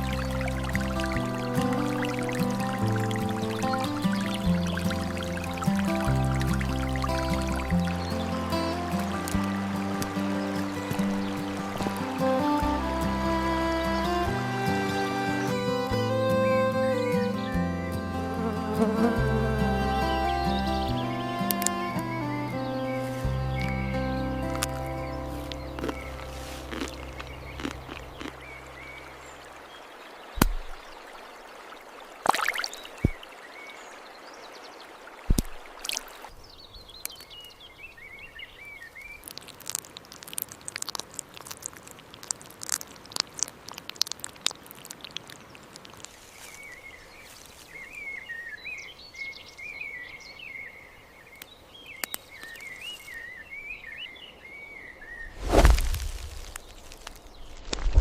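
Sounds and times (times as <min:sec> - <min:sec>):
background music: 0:00.0 - 0:27.5
small birds chirping: 0:00.0 - 0:58.0.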